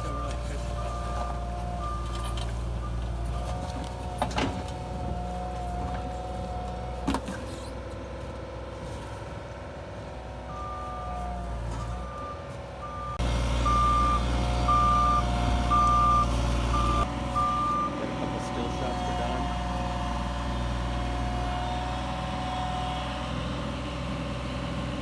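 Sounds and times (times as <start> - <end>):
reversing alarm beeping: 0.0 - 4.3, 10.4 - 19.8
heavy vehicle engine humming: 0.0 - 25.0.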